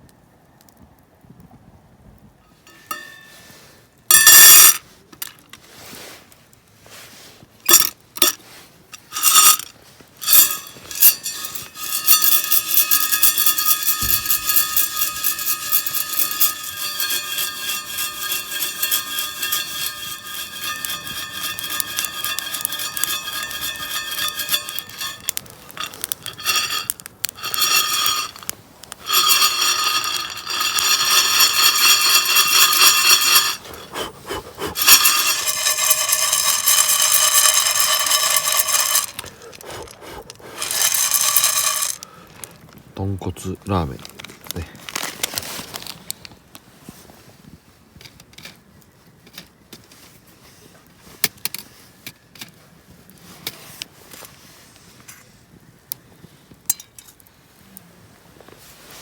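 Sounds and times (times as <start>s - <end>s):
metal cookware clinking: 2.7s - 3.4s, 9.0s - 9.6s, 10.2s - 42.1s
metal cookware scraping and rattling: 2.7s - 3.5s, 9.0s - 9.6s, 10.2s - 42.1s.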